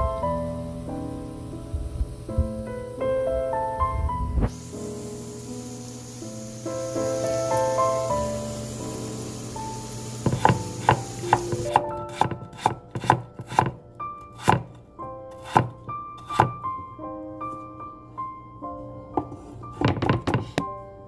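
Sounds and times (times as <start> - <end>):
soft piano music: 0.0 - 21.0
knife chopping on cutting board: 10.2 - 16.6.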